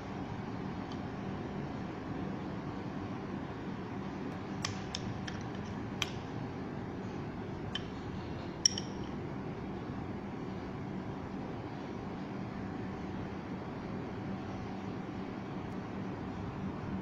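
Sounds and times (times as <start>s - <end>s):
metal device clicks and taps: 4.6s - 6.2s, 8.6s - 9.2s.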